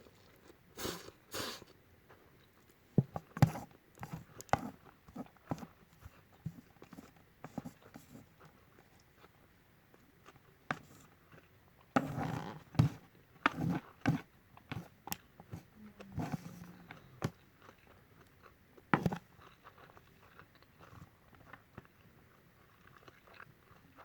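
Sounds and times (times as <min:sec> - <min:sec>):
chewing and wet mouth noises: 0:00.0 - 0:02.8, 0:14.6 - 0:24.0.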